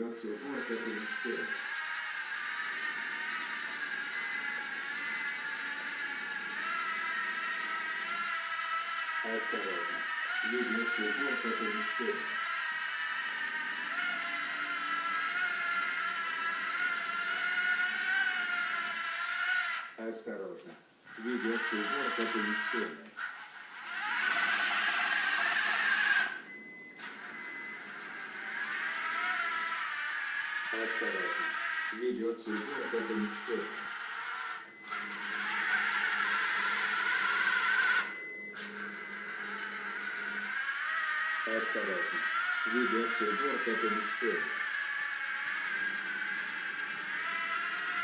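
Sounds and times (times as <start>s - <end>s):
robot vacuum motors whirring: 0.0s - 20.1s, 21.1s - 48.0s.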